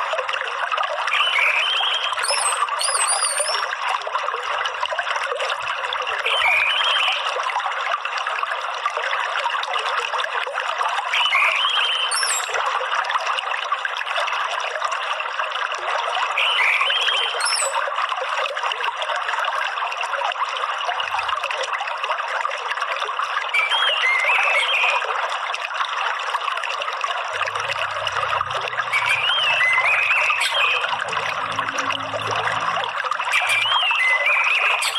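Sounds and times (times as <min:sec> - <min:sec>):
trickling running water: 0:00.0 - 0:34.9
bird chirps: 0:01.1 - 0:03.7, 0:11.2 - 0:12.6, 0:16.4 - 0:17.8, 0:28.7 - 0:31.9, 0:33.3 - 0:34.9.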